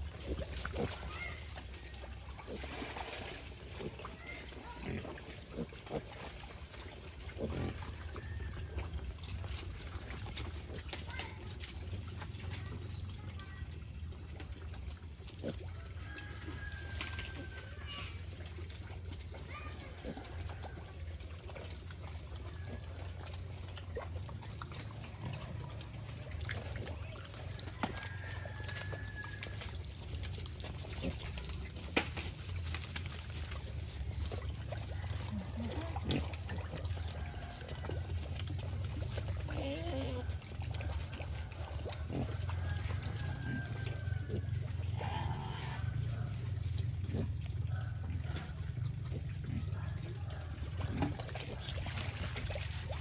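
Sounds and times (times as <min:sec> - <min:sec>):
pigs grunting: 0:00.0 - 0:12.6, 0:30.2 - 0:32.0, 0:33.0 - 0:52.4
pig squealing: 0:44.2 - 0:46.4.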